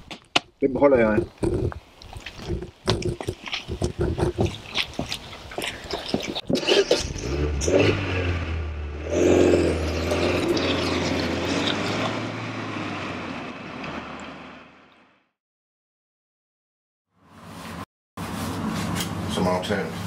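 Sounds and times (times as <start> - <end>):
car engine humming: 7.0 - 14.9.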